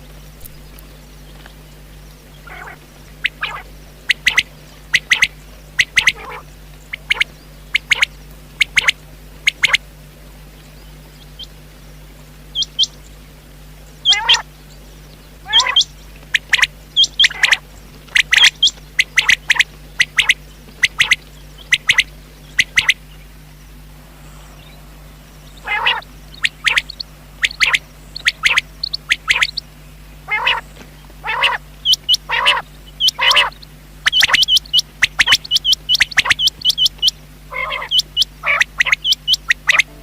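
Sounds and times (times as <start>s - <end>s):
low rough bird calls: 0.0s - 9.8s, 10.4s - 40.0s
quail whistled calls: 2.3s - 9.8s, 12.5s - 13.0s, 14.0s - 14.5s, 15.4s - 23.1s, 24.7s - 40.0s.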